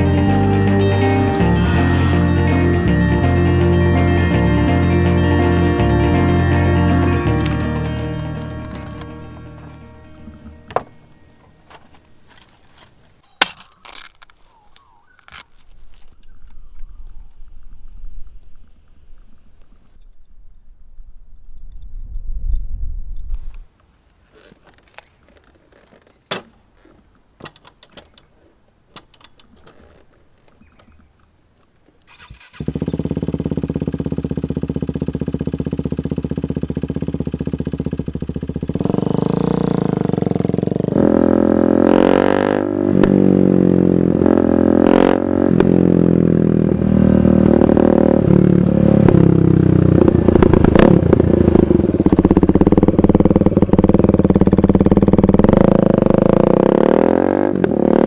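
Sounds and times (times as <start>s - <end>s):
motorcycle engine starting and revving: 0.0s - 12.8s, 32.1s - 58.0s
exhaust cracks: 0.0s - 22.0s, 32.1s - 58.0s.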